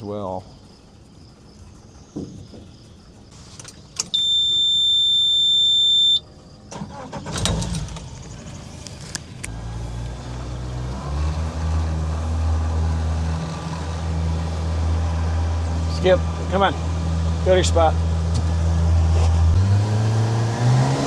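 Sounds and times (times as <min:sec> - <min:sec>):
outboard motor cranking and idling: 0:01.8 - 0:04.9, 0:06.0 - 0:20.5
high warning beep: 0:04.0 - 0:06.3.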